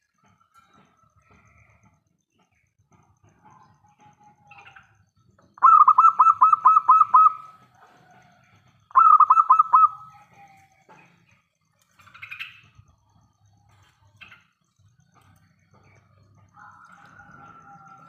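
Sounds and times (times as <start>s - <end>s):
dove cooing song: 5.5s - 8.2s, 8.9s - 10.6s.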